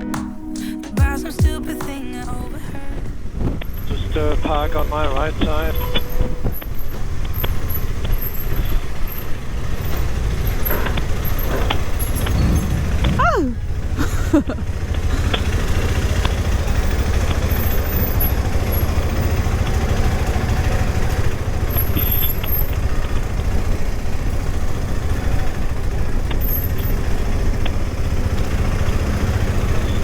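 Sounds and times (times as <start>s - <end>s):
motorcycle engine rumble: 2.4s - 30.0s
wind noise: 2.6s - 4.6s.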